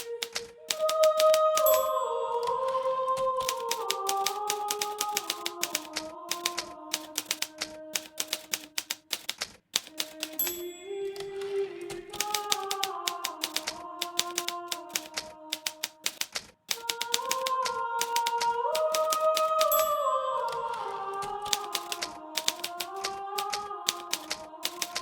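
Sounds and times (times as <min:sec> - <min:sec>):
typewriter key strikes: 0:00.0 - 0:01.9, 0:03.4 - 0:10.7, 0:12.1 - 0:20.0, 0:21.4 - 0:25.0.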